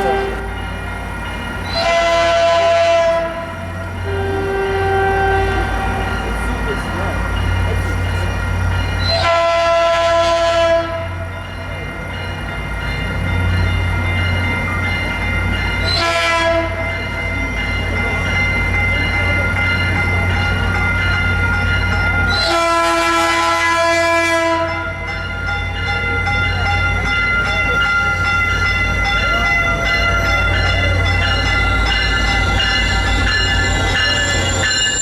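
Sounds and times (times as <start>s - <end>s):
diesel locomotive horn: 0.0s - 0.8s, 1.7s - 6.2s, 9.0s - 11.3s, 15.8s - 17.0s, 22.3s - 25.0s
diesel engine rumble: 0.0s - 1.7s.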